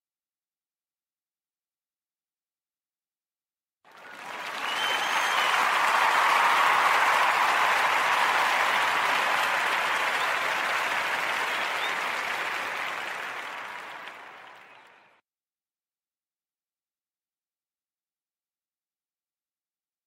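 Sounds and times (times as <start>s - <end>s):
crowd applause: 3.9s - 15.2s.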